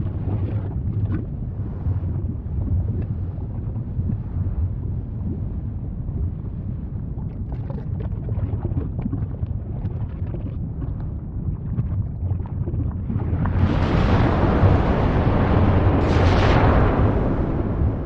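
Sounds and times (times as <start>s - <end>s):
volcano rumbling: 0.0s - 18.0s
eruption rushing roar: 13.0s - 18.0s.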